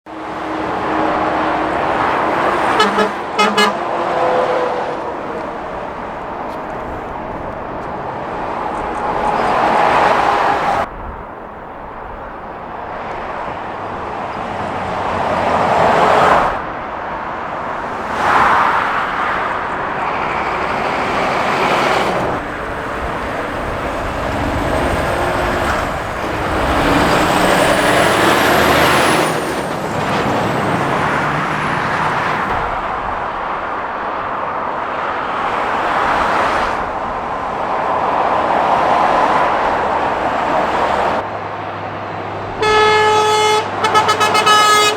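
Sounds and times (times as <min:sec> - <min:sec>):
vehicles passing at speed: 0:00.1 - 0:44.9
short horn toots: 0:02.6 - 0:03.8, 0:42.6 - 0:44.9.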